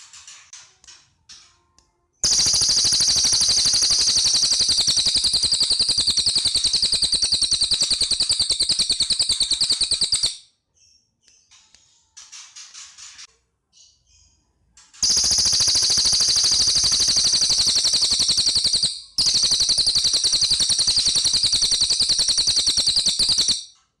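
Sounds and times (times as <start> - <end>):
songbird rattling trill: 2.2 - 10.4, 15.0 - 23.7
bird chirping: 2.2 - 13.1, 13.7 - 23.8.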